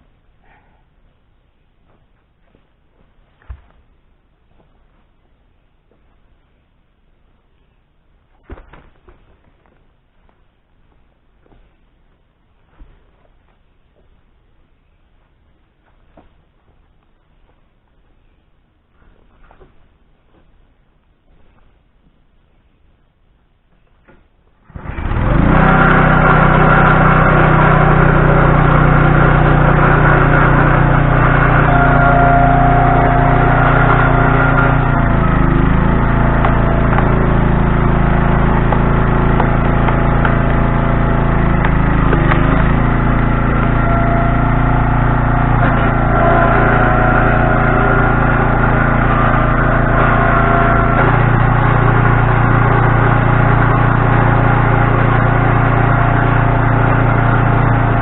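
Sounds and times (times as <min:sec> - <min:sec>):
engine running steadily: 0:24.7 - 0:58.0.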